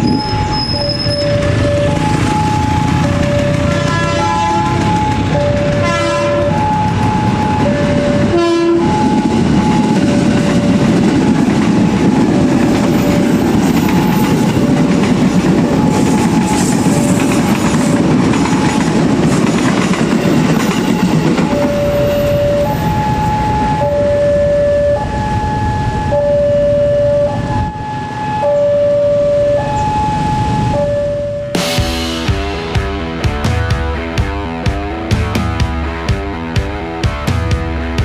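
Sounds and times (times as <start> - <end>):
train rumble and wheel clatter: 0.0 - 26.2
two-tone crossing alarm: 0.0 - 31.8
train horn blasts: 3.6 - 7.4, 8.2 - 9.9.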